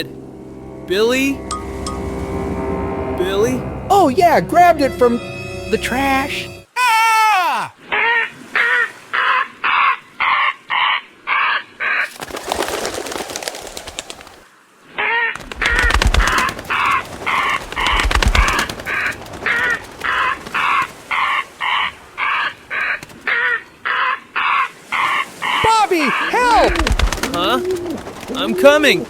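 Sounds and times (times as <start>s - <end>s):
rushing scuffling commotion: 15.4s - 21.0s, 26.4s - 29.0s.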